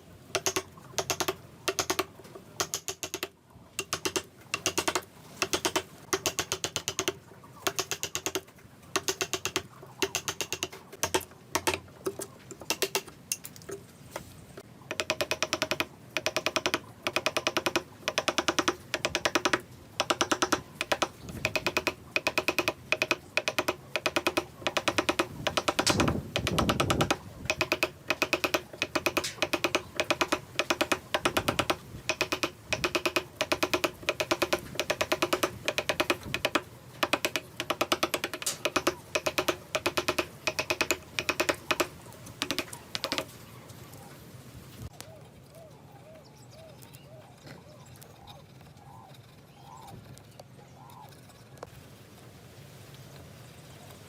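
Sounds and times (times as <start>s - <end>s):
sharp clicking on wood: 0.3s - 13.8s, 14.6s - 43.4s.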